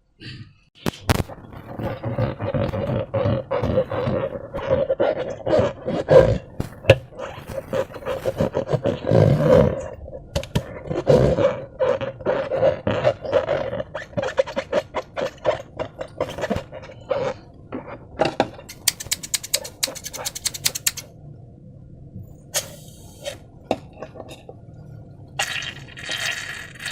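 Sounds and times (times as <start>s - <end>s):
slime squelching and squeaking: 0.8s - 21.1s
crackling clicks: 18.7s - 21.1s.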